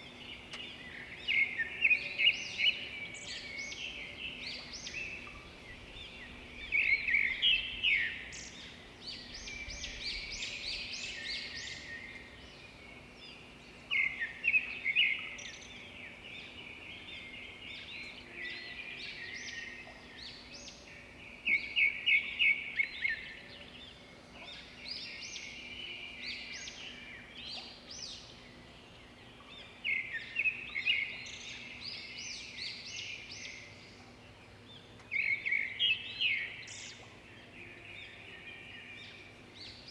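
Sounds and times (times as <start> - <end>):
birds twittering softly: 0.0 - 39.9.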